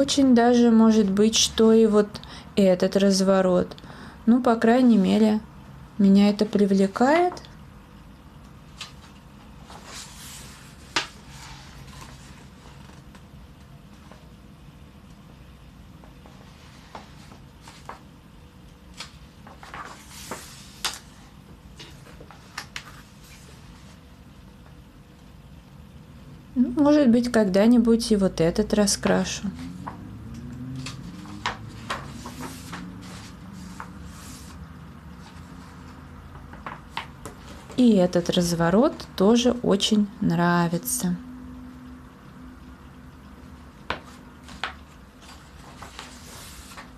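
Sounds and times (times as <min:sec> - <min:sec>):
paper pages rustling: 0:08.7 - 0:13.3, 0:16.2 - 0:18.2, 0:18.9 - 0:24.0, 0:30.8 - 0:37.8, 0:43.9 - 0:46.9.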